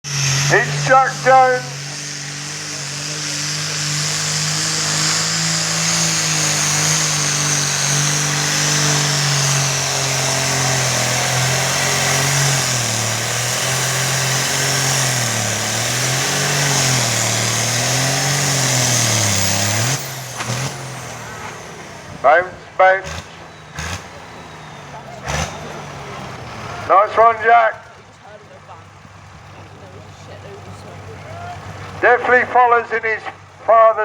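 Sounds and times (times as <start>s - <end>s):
tractor diesel engine droning: 0.0s - 34.0s.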